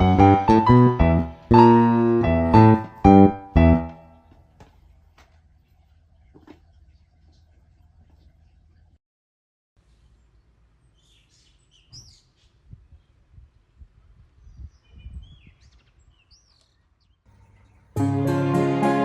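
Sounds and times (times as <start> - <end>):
piano music: 0.0 - 4.2, 18.0 - 19.0
wild birds chirping: 5.4 - 9.0.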